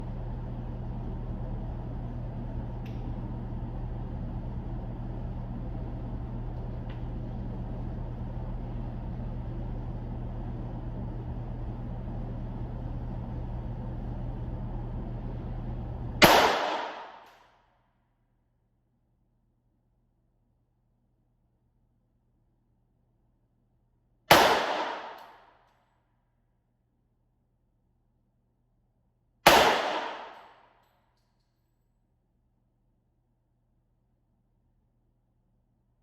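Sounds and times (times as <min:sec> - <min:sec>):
low hum: 0:00.0 - 0:25.7
handgun shot: 0:16.2 - 0:17.4, 0:24.3 - 0:25.4, 0:29.5 - 0:30.6.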